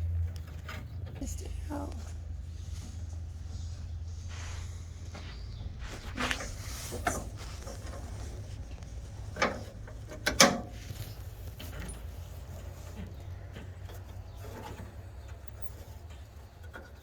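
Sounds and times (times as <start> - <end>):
hand tools knocking and clanking: 9.2 - 17.0.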